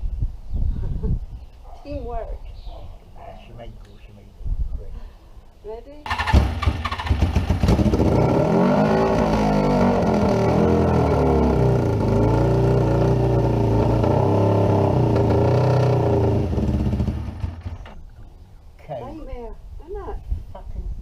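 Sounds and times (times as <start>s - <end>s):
motorcycle engine running unevenly: 6.1s - 18.0s.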